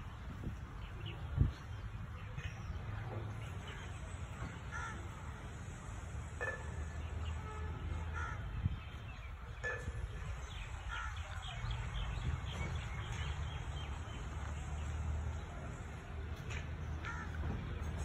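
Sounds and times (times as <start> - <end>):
birds calling: 5.9 - 15.0, 16.6 - 18.0.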